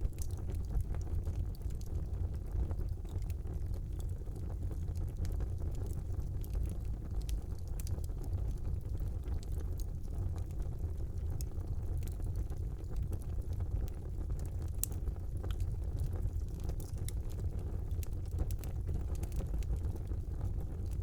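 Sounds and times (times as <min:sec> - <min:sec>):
fire crackling and popping: 0:00.0 - 0:21.0
fire rumbling: 0:00.0 - 0:21.0.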